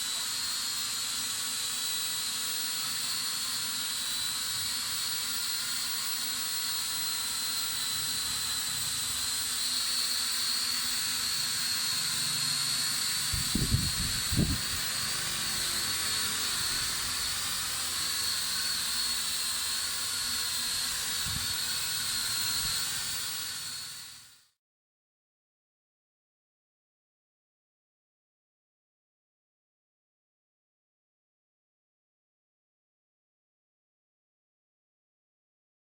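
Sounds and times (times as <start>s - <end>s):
drone motors whining: 0.0s - 24.5s.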